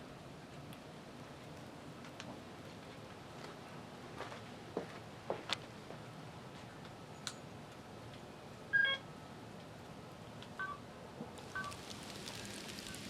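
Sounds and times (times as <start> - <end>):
faint steady hiss: 0.0 - 13.0
sleet pellets ticking: 11.4 - 13.0.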